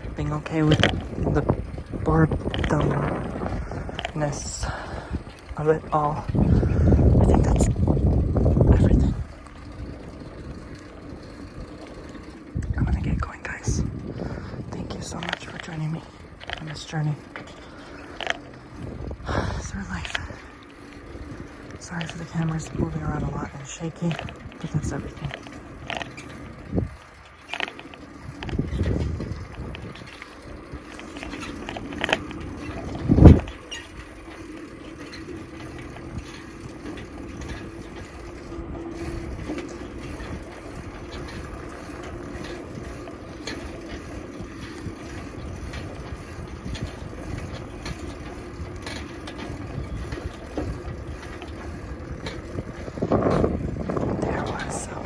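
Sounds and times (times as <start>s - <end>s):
wind and tyre rumble: 0.0s - 55.0s.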